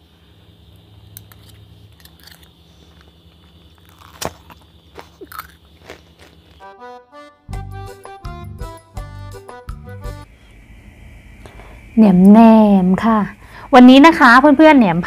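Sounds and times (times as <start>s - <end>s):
chewing with crunches: 1.1s - 6.7s
music with steady beat: 6.6s - 10.3s.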